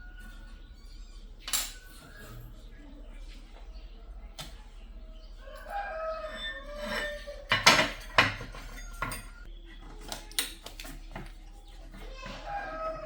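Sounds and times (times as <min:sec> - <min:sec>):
rooster crowing: 0:05.4 - 0:07.5, 0:12.2 - 0:13.0
metallic clinks and knocks: 0:06.5 - 0:09.5.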